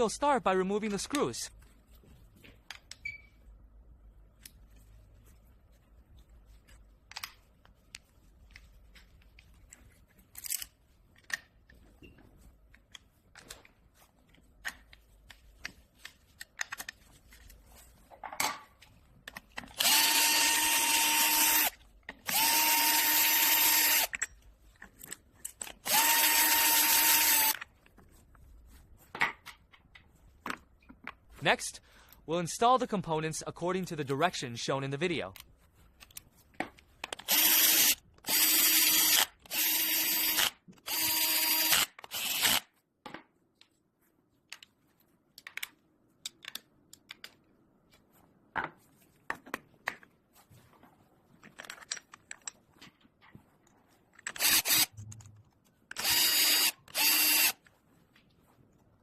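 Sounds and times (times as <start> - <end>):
electric drill-driver running: 19.8 - 24.2, 25.8 - 27.6, 37.2 - 42.7, 54.3 - 54.9, 55.9 - 57.6
clicks and taps of tools: 44.5 - 48.0.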